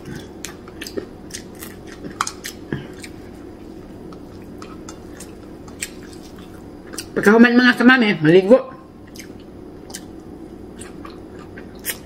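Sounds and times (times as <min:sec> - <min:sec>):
crunchy chewing: 0:00.0 - 0:07.2.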